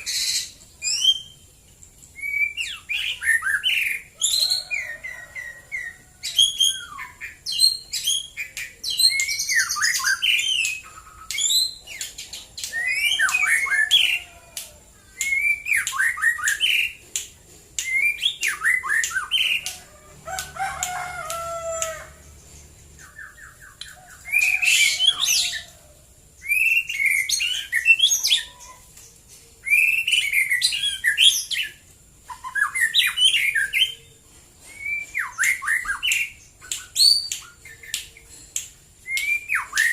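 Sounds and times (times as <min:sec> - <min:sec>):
songbird singing whistles and trills: 0:00.0 - 0:01.5, 0:02.1 - 0:22.1, 0:23.0 - 0:25.7, 0:26.4 - 0:39.9.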